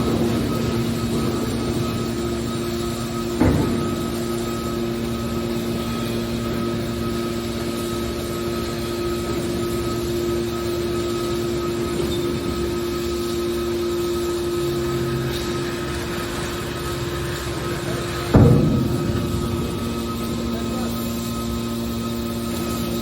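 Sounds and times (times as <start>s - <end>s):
hydraulic power unit humming: 0.0s - 23.0s
low tone: 16.4s - 23.0s.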